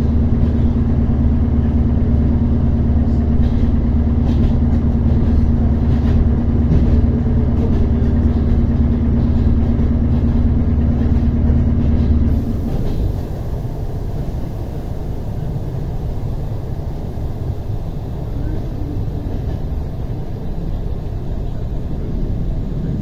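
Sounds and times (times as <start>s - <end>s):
train low rumble: 0.0s - 23.0s.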